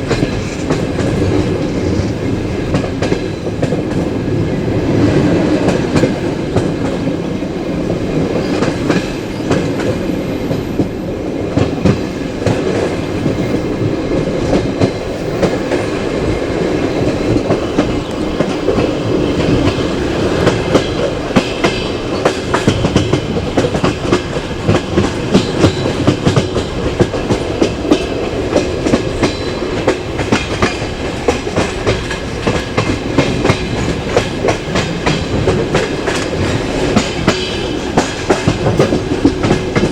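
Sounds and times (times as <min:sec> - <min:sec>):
clickety-clack over rail joints: 0:00.0 - 0:39.9
train wheels rumbling: 0:00.0 - 0:39.9.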